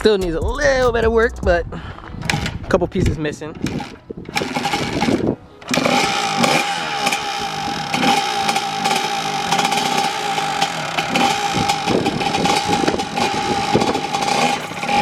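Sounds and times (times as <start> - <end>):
small motorcycle engine running: 3.6 - 15.0.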